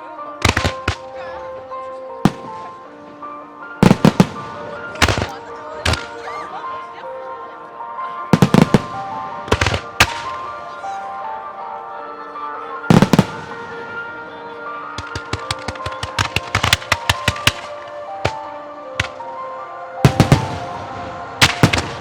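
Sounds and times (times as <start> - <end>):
background music with held notes: 0.0 - 22.0
firework bangs: 0.4 - 1.2, 2.2 - 6.2, 8.3 - 10.6, 12.9 - 14.0, 14.9 - 19.4, 20.0 - 22.0.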